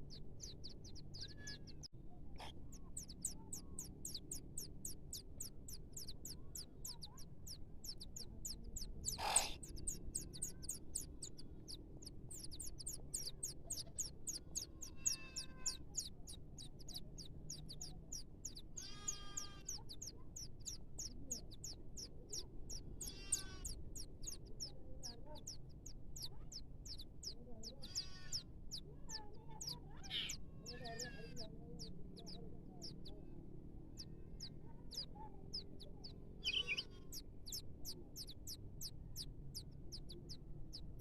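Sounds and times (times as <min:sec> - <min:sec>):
small birds chirping: 0:00.0 - 0:41.0
harsh bird calls: 0:08.8 - 0:11.2, 0:12.3 - 0:16.0, 0:18.8 - 0:19.8, 0:23.0 - 0:23.8, 0:30.0 - 0:31.4, 0:36.4 - 0:37.2.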